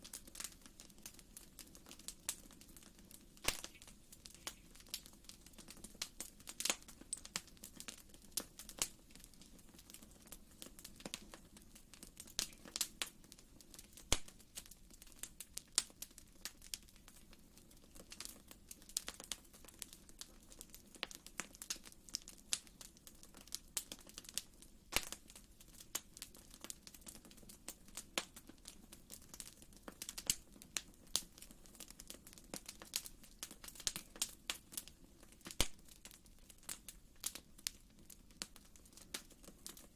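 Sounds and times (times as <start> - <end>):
sharp pops and snaps of fire: 0.0 - 39.9
wood fire crackling: 0.0 - 39.9
low hiss of flames: 0.1 - 9.5.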